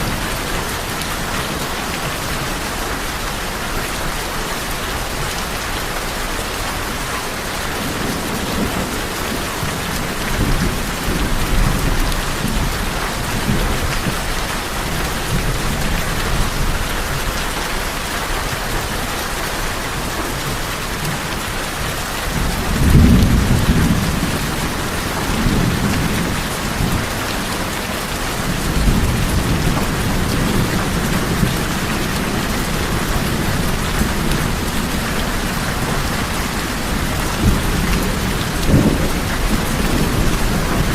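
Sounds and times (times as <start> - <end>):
rain on a tin roof: 0.0 - 40.9
thunder rumbling: 22.2 - 40.9.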